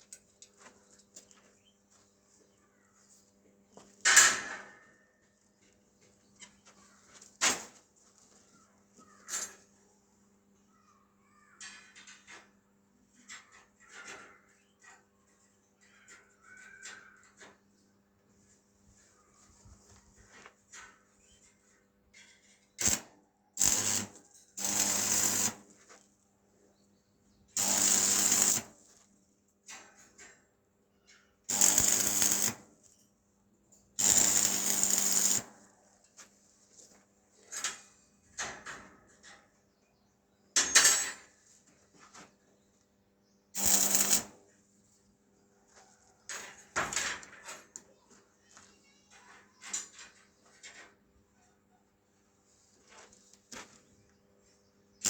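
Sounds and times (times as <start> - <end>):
power tool bursts: 22.8 - 25.7, 27.6 - 28.8, 31.5 - 32.7, 34.0 - 35.5, 43.6 - 44.4.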